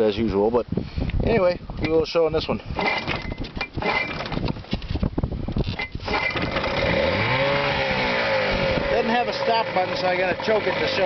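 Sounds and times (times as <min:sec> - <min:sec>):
outboard motor running: 0:02.7 - 0:11.0.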